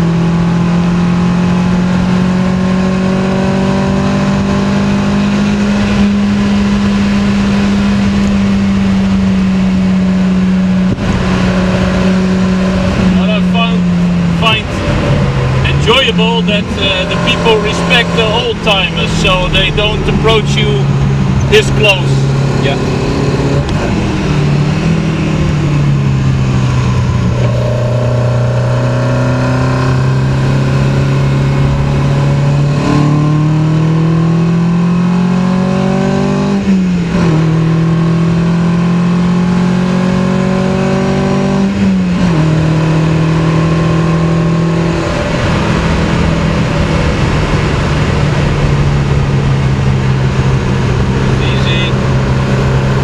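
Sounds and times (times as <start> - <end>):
car engine running hard: 0.0 - 53.0.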